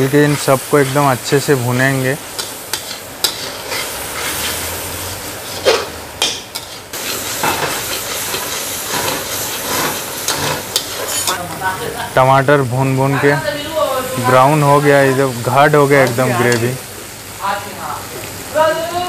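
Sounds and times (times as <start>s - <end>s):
masala sizzling in oil: 0.0s - 19.0s
metal spatula scraping a pan: 2.4s - 11.5s.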